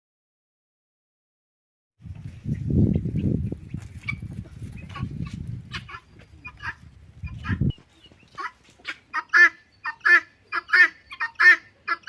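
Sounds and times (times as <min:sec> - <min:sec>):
guinea fowl calling: 0:03.0 - 0:12.0.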